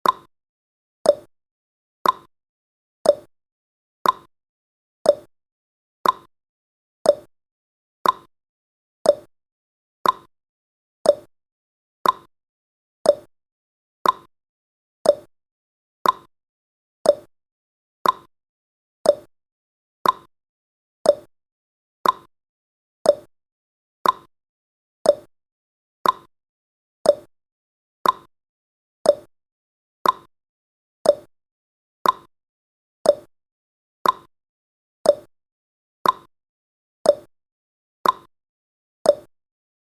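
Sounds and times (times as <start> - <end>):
clock ticking: 2.0 - 2.3, 4.0 - 4.3, 6.0 - 6.3, 8.0 - 8.3, 10.0 - 10.3, 12.0 - 12.3, 14.0 - 14.3, 15.1 - 15.3, 16.0 - 16.3, 18.0 - 18.3, 20.0 - 20.3, 21.1 - 21.3, 22.0 - 22.3, 24.0 - 24.3, 26.0 - 26.3, 28.0 - 28.3, 29.1 - 29.3, 30.0 - 30.3, 31.1 - 31.3, 32.0 - 32.3, 33.1 - 33.3, 34.0 - 34.3, 35.1 - 35.3, 36.0 - 36.3, 38.0 - 38.3, 39.1 - 39.3.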